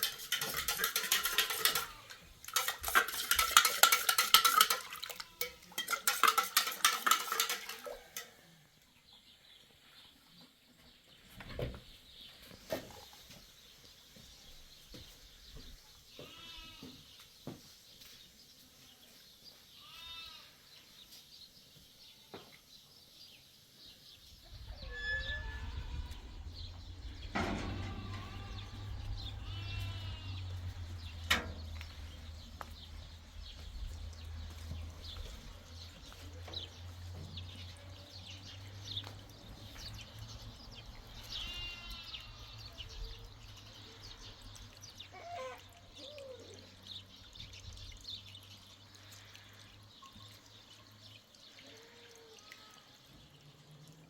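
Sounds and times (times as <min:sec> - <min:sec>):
goats bleating: 0:16.2 - 0:16.9, 0:19.8 - 0:20.6, 0:27.4 - 0:30.6, 0:41.3 - 0:42.6
steady low rumble: 0:24.4 - 0:34.1.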